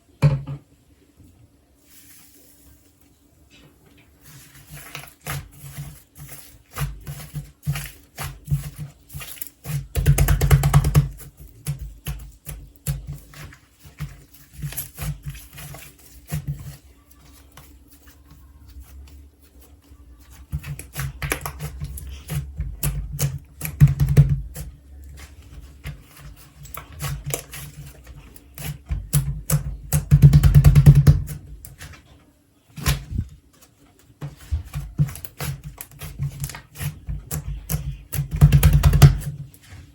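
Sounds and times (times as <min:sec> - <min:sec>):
slime squishing: 0:04.0 - 0:32.1, 0:32.8 - 0:39.9.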